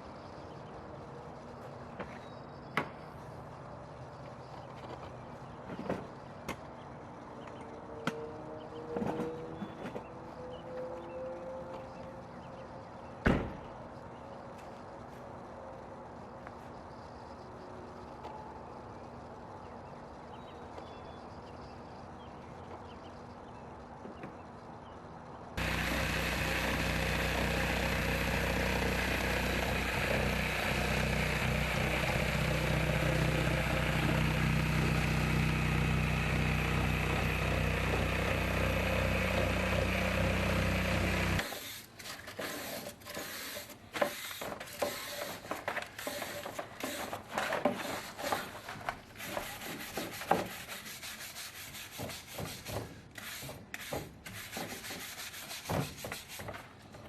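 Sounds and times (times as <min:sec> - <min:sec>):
electric motor running: 0:25.6 - 0:41.5
scraping and rubbing strokes: 0:41.4 - 0:56.6.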